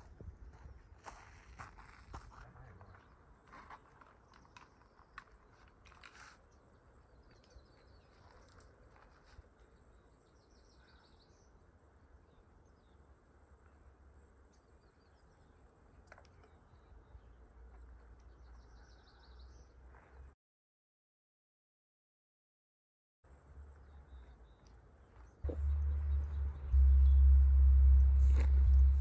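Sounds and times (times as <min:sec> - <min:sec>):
small birds chirping: 0:01.7 - 0:20.3, 0:23.6 - 0:29.0
low steady rumble: 0:23.3 - 0:29.0.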